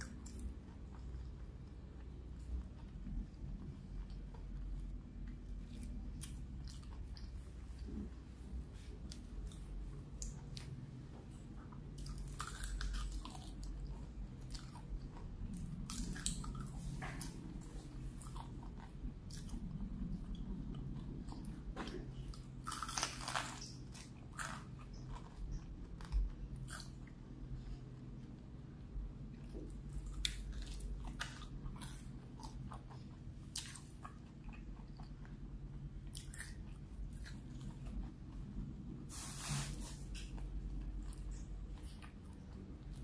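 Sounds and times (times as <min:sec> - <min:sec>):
chewing and biting: 0:08.9 - 0:28.3, 0:29.3 - 0:38.7.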